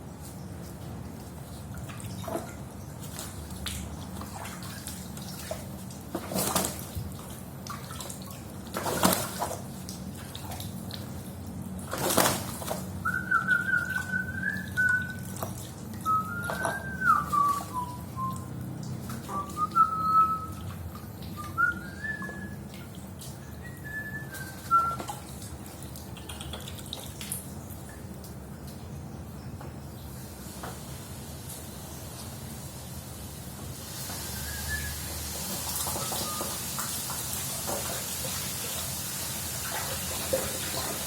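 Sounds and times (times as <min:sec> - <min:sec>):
person whistling: 0:13.0 - 0:15.2, 0:16.1 - 0:18.5, 0:19.3 - 0:20.6, 0:21.4 - 0:22.6, 0:23.6 - 0:25.1, 0:34.3 - 0:35.1
water spraying: 0:30.2 - 0:41.0.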